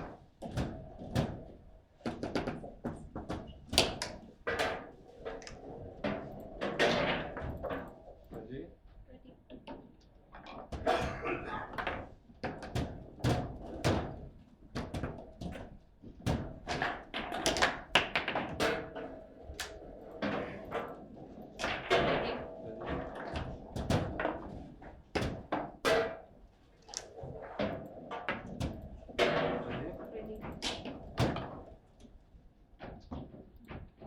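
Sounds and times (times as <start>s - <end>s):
foosball ball knocking: 16.3s - 24.6s, 27.2s - 30.1s.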